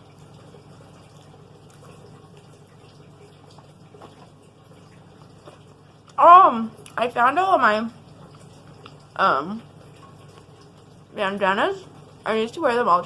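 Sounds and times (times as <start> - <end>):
soft eating clicks: 0.1 - 7.0, 8.1 - 11.0.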